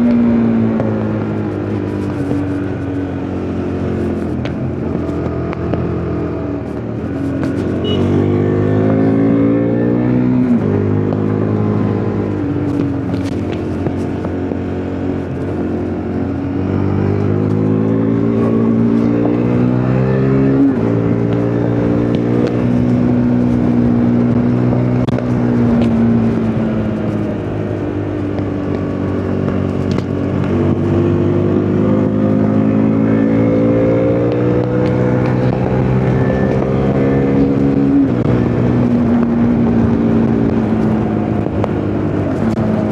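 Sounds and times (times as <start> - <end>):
motorcycle engine revving through gears: 0.0 - 42.9.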